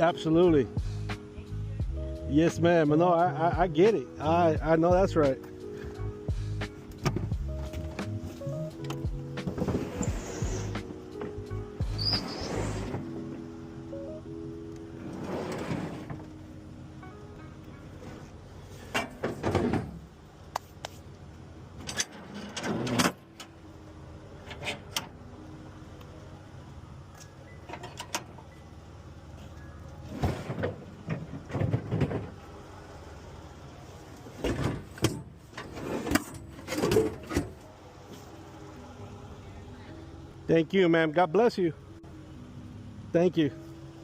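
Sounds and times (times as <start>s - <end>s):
refrigerator clunking and scraping: 7.0s - 8.6s, 9.3s - 13.3s, 15.0s - 16.4s, 17.9s - 20.1s, 21.8s - 23.2s, 30.0s - 32.4s, 34.4s - 37.6s.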